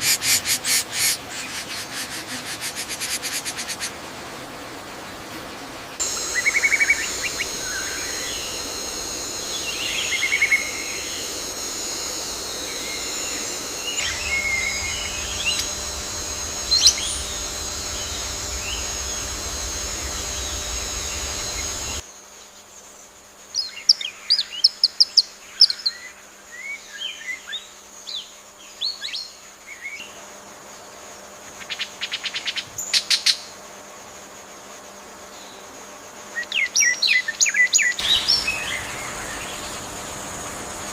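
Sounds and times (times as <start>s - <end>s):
insects droning: 0.0s - 40.9s
rapid trill: 6.0s - 22.0s
bird calls: 38.0s - 40.5s.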